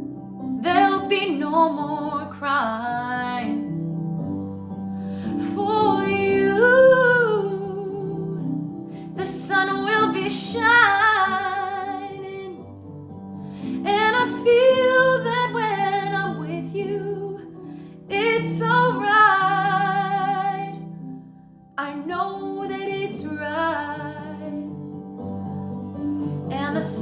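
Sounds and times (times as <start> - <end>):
woman singing with vibrato: 5.2 - 8.4, 9.1 - 12.6, 13.6 - 17.4, 18.1 - 20.8, 21.8 - 24.6, 26.5 - 27.0.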